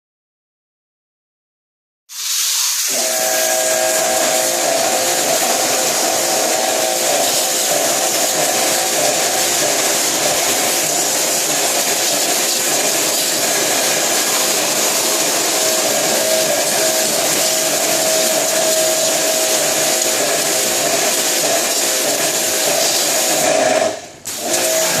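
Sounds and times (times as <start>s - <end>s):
cleaning machine motor whir: 2.5s - 25.0s
humming tone: 2.9s - 9.9s, 13.4s - 20.9s.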